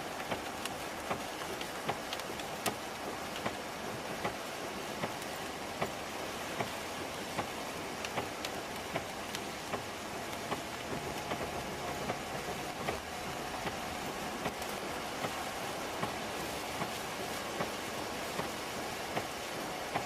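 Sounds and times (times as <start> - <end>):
rain-like rushing noise: 0.0 - 20.0.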